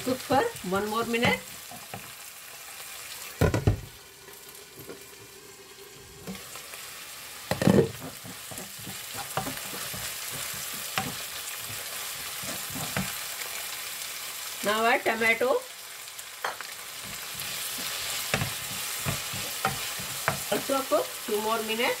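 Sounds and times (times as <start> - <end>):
onions sizzling in hot oil: 0.0 - 22.0
spatula striking pan: 7.5 - 13.2, 16.4 - 20.7.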